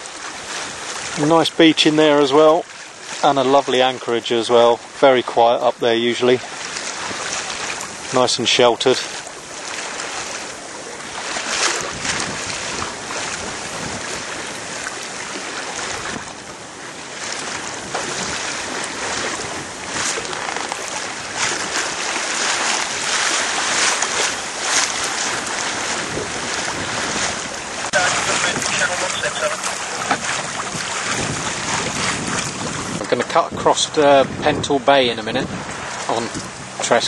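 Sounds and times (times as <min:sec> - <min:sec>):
water rushing along a hull: 0:00.0 - 0:37.0
wind buffeting microphone: 0:06.0 - 0:37.0.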